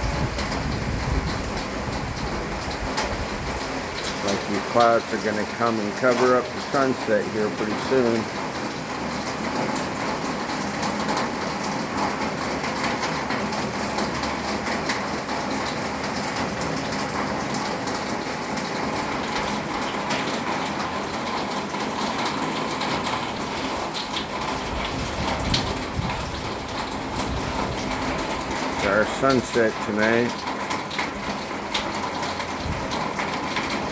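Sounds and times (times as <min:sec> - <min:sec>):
low thunder rumble: 0:00.0 - 0:03.8, 0:24.4 - 0:28.8
rain falling: 0:00.0 - 0:33.9.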